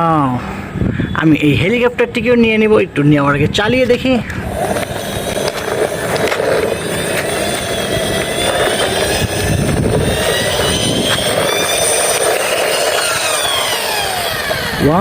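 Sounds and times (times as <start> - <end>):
sliding thin tones: 4.3 - 14.8
toy helicopter whirring: 4.3 - 15.0.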